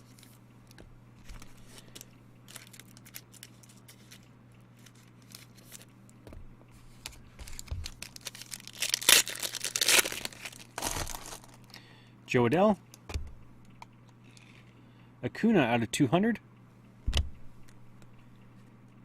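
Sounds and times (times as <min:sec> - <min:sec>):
wrappers crinkling and rustling: 0:01.2 - 0:05.9, 0:06.8 - 0:11.8.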